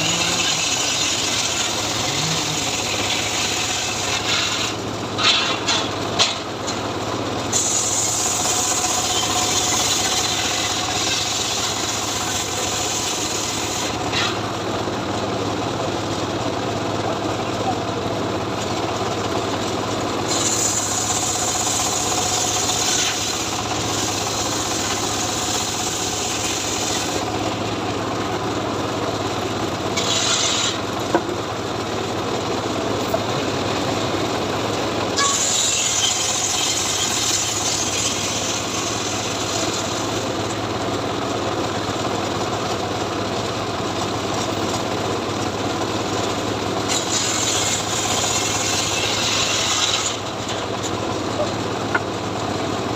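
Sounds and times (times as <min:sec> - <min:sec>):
saw blade rasping through wood: 0:00.0 - 0:06.4, 0:07.5 - 0:14.4, 0:20.2 - 0:27.4, 0:29.9 - 0:31.2, 0:35.2 - 0:40.2, 0:46.8 - 0:52.0
saw engine drone: 0:00.0 - 0:06.8, 0:07.4 - 0:42.4.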